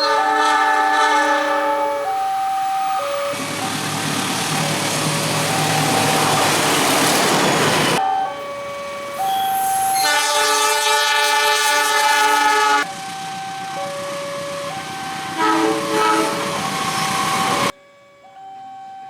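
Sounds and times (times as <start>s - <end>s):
train horn chord: 0.0s - 2.1s, 9.4s - 12.9s, 15.4s - 16.5s
level crossing alarm: 0.0s - 19.0s
train rolling clatter: 3.3s - 8.0s.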